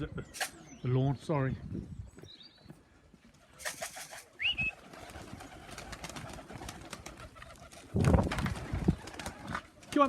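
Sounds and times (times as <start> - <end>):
wing flutters: 3.4 - 10.0
pigeons tapping: 3.6 - 10.0.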